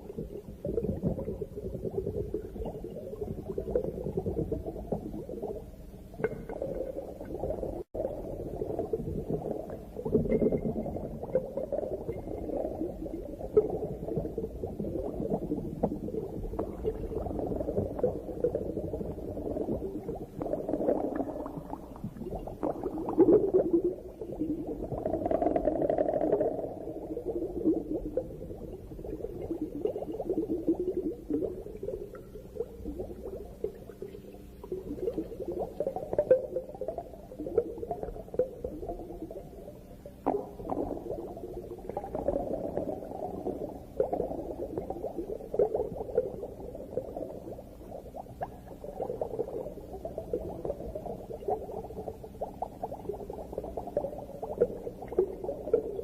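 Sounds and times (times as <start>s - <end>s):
underwater bubbling and gurgling: 0.0s - 56.0s.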